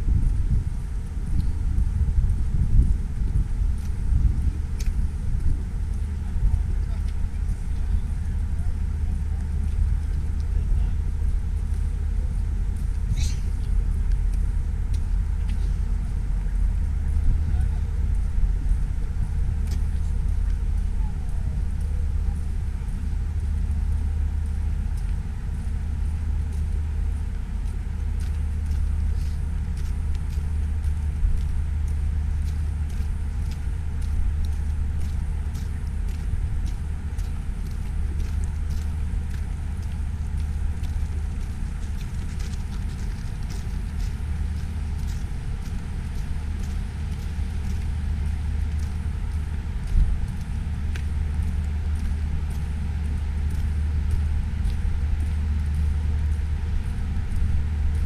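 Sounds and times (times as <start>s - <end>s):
wind buffeting microphone: 0.0s - 58.0s
faint ticks: 3.8s - 6.0s, 23.0s - 58.0s.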